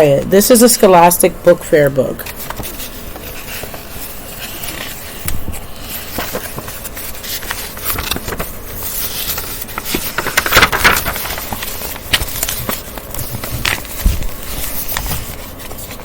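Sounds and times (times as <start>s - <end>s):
rustling and scraping handling noise: 2.0s - 16.0s.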